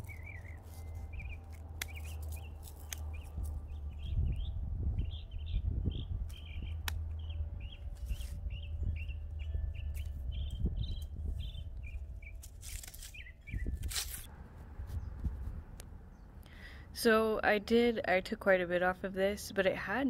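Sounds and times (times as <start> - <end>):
small bird chirping: 0.0 - 13.8
steady low rumble: 0.0 - 20.0.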